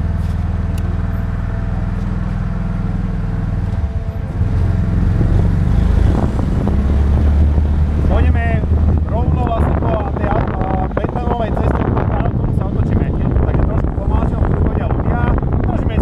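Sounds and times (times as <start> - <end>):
car engine accelerating: 0.0 - 15.6.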